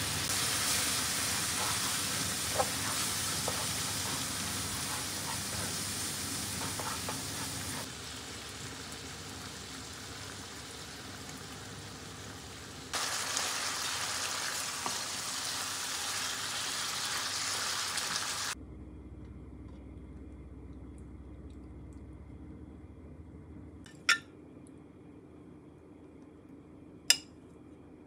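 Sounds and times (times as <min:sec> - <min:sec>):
meat sizzling in a frying pan: 0:00.0 - 0:18.6
spatula stirring in a pan: 0:00.3 - 0:07.9.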